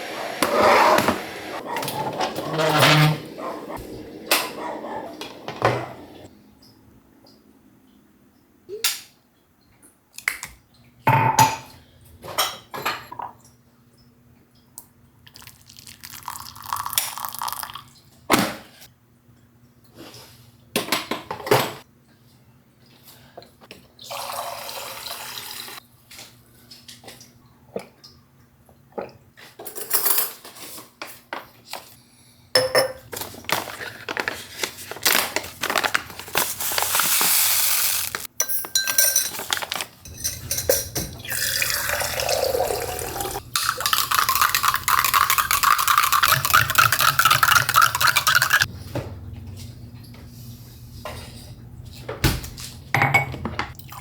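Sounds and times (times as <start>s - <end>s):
tap water running: 0.0s - 6.3s, 15.3s - 18.0s, 40.1s - 48.7s
dishes and cutlery clinking: 38.3s - 41.4s.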